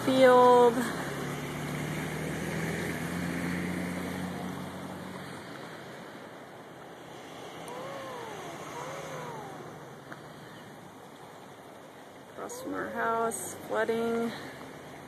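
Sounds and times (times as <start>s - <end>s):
floodwater rushing: 0.0s - 15.0s
vehicle engine humming: 0.0s - 15.0s
animal calls: 7.0s - 10.8s.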